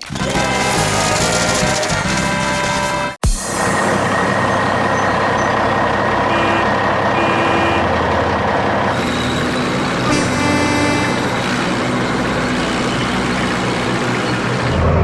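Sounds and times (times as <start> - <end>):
truck engine running: 0.0 - 15.0
long pitched tone: 3.7 - 13.3
short tooting tones: 6.2 - 8.2, 10.0 - 11.7.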